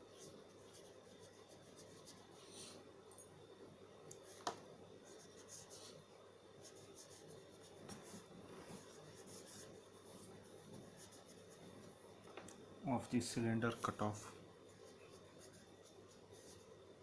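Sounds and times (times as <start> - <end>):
faint handwriting scratching: 0.0 - 2.8, 5.0 - 12.0, 14.6 - 16.8.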